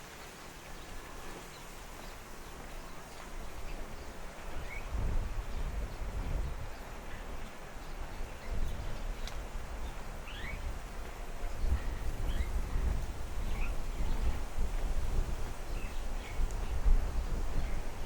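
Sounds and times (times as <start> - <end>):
small birds chirping: 0.2 - 10.7.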